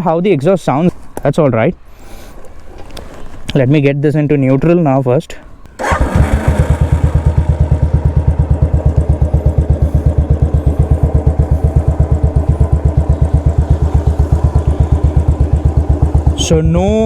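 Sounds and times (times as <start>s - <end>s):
motorcycle engine idling loudly: 5.8s - 17.0s.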